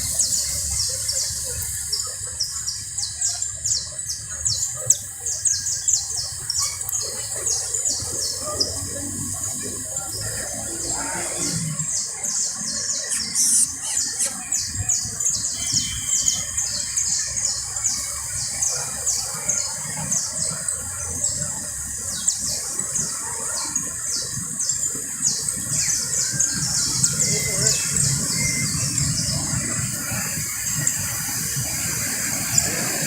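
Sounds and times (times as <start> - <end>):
canary singing: 12.6 - 18.0.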